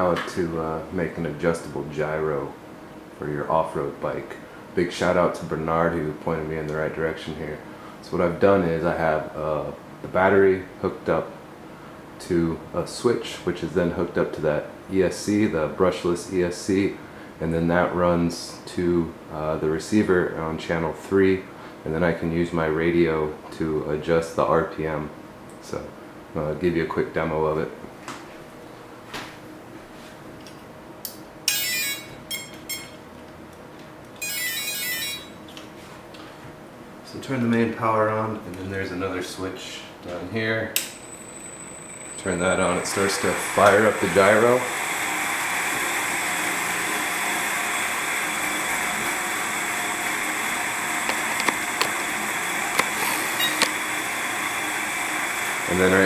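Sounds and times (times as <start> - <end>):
faint steady hum: 0.0 - 56.0
electronic beeping tones: 31.5 - 32.9, 34.2 - 35.4, 53.3 - 53.8
gyro motor whirring: 34.2 - 35.3, 42.0 - 56.0.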